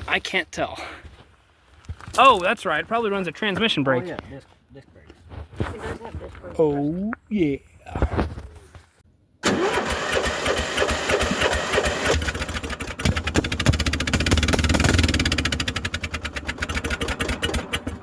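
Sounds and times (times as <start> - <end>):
atv engine revving: 9.4 - 18.0.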